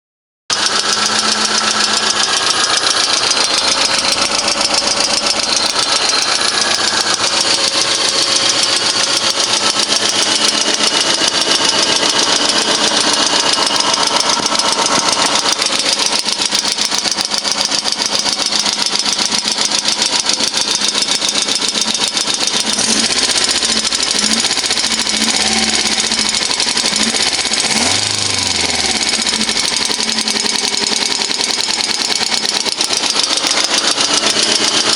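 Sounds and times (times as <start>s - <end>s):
car engine running: 0.5s - 34.9s
hydraulic lifters ticking knock: 0.5s - 34.9s.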